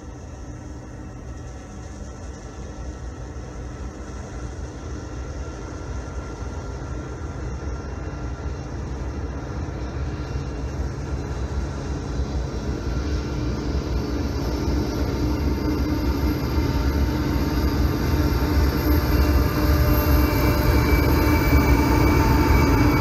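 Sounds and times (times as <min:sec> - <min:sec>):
diesel locomotives rumbling: 0:03.3 - 0:23.0.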